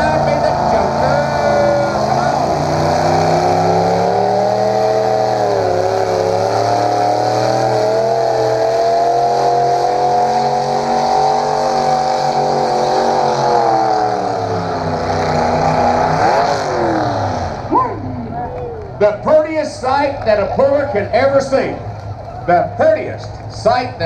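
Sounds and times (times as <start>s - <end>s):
tractor engine at high revs: 0.0s - 18.4s.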